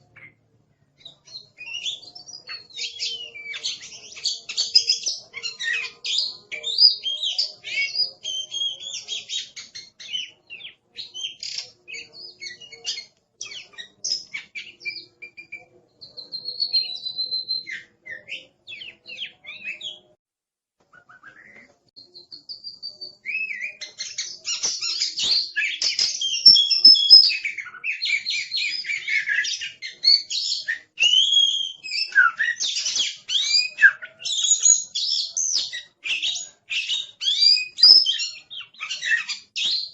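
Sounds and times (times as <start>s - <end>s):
bird singing chirps and trills: 1.0s - 20.2s, 21.2s - 39.9s.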